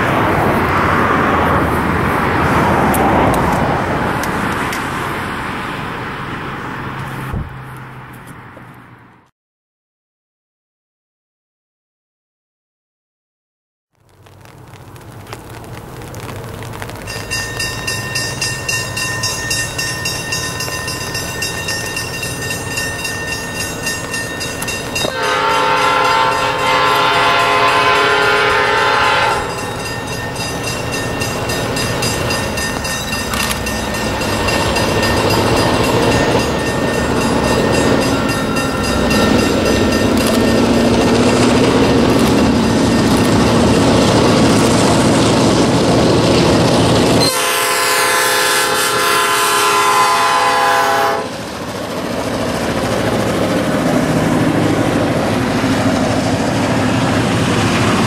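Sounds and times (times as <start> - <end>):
diesel locomotive engines droning: 0.0 - 9.2, 14.8 - 58.0
train rumble: 0.0 - 9.2, 14.0 - 58.0
multi-tone train horn blast: 25.0 - 29.8, 47.2 - 51.4.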